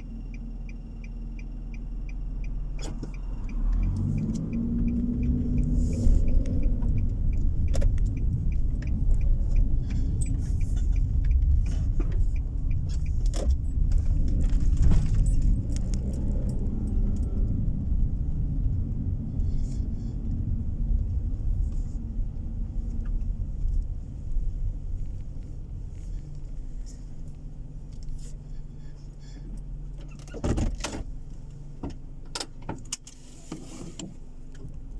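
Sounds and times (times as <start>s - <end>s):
car road and engine rumble: 0.0s - 34.9s
jangling rattles and clicks: 9.0s - 17.4s.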